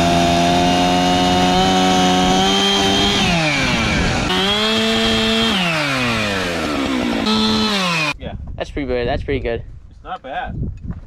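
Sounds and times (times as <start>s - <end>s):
chainsaw revving: 0.0s - 8.2s.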